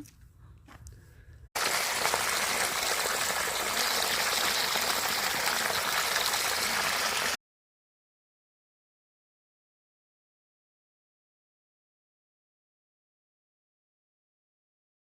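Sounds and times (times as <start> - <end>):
running water: 1.6 - 7.4.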